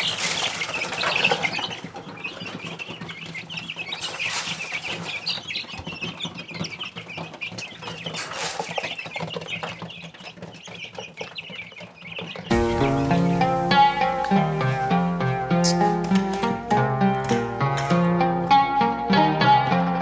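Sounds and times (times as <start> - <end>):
birds calling: 0.0 - 20.0
plucked string music: 12.5 - 20.0.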